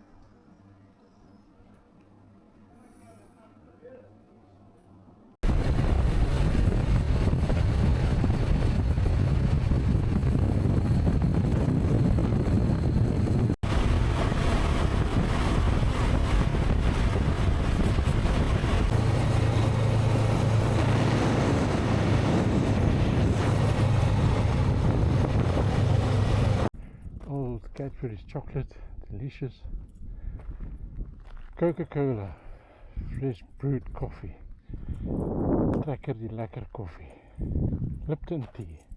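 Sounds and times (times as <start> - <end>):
wind rushing over microphone: 5.4 - 27.3, 34.0 - 35.9, 37.4 - 38.1.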